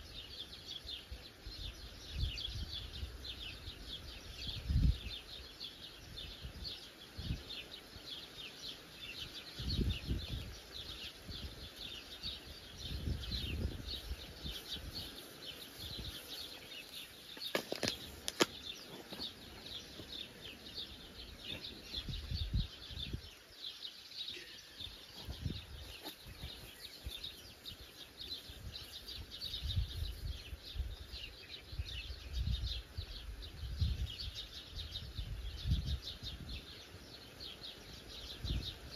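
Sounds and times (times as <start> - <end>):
small birds chirping chorus: 0.0 - 38.9.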